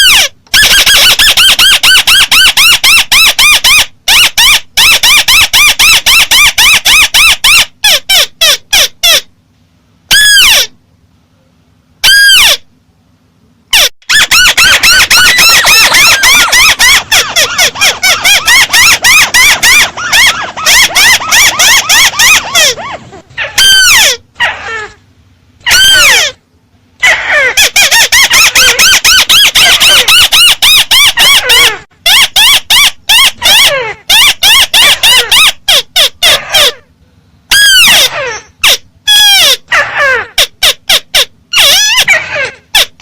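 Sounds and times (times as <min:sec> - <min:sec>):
bird rapid chirping: 0:14.1 - 0:24.0.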